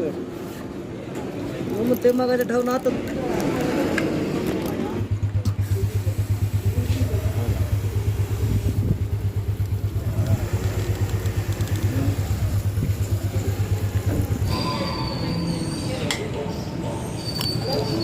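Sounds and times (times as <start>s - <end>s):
diesel engine running: 3.8s - 14.5s.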